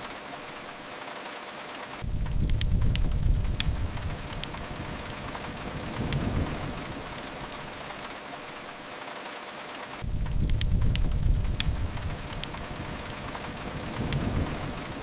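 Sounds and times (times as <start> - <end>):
steady rain hiss: 0.0 - 15.0
wood fire crackling: 0.0 - 15.0
low rumble: 2.0 - 7.2, 10.0 - 15.0.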